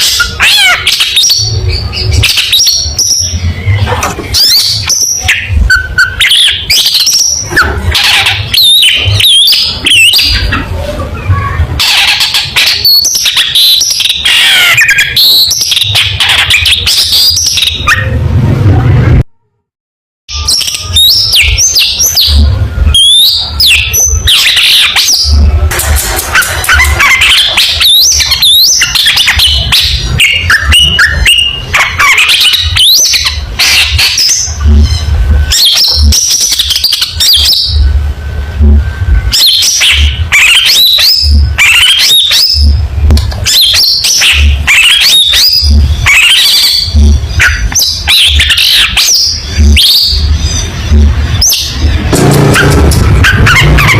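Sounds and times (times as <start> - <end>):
low rumble: 49.5 - 53.9.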